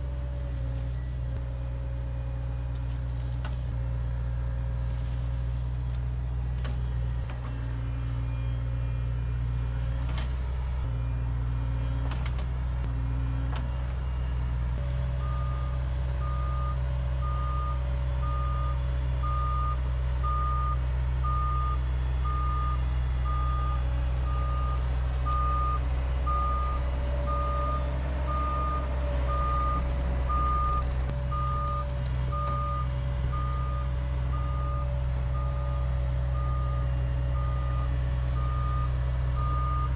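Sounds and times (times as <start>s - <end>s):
diesel engine running: 0.0s - 39.9s
backup alarm beeping: 15.2s - 39.9s.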